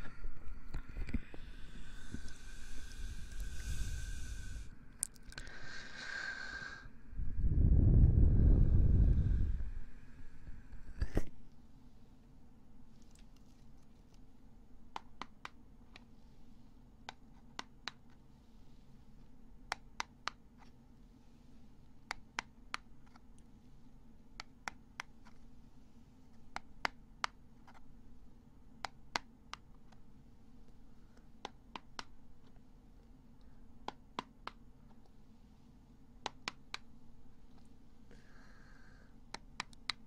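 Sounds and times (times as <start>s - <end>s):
faint steady hum: 0.0s - 40.0s
crisp ear-cleaning clicks and taps: 24.4s - 25.1s, 31.2s - 32.2s, 36.2s - 36.9s, 39.3s - 40.0s.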